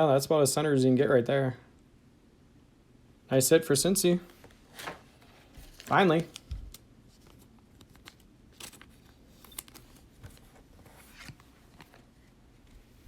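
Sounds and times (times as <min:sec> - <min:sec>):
cards and wrapper rustling: 0:04.4 - 0:12.8.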